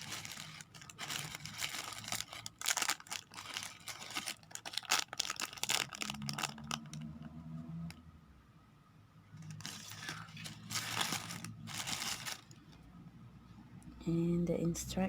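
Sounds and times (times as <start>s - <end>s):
plastic packaging crinkling: 0.0s - 7.1s, 9.4s - 12.6s.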